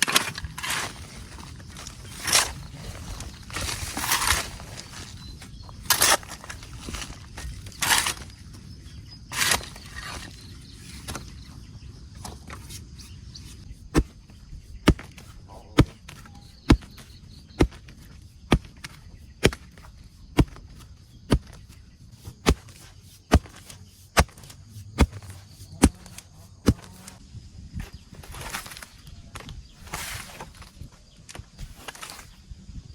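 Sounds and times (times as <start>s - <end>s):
rustling: 0.0s - 8.6s
tool striking wood: 22.3s - 27.1s.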